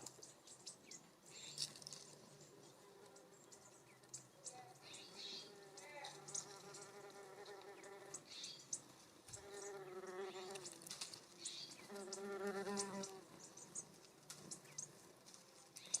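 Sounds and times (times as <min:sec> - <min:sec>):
bird chips and calls: 0:03.4 - 0:06.8, 0:07.8 - 0:15.0, 0:15.8 - 0:16.0
insect buzzing: 0:05.2 - 0:08.6, 0:09.3 - 0:10.9, 0:11.7 - 0:13.3.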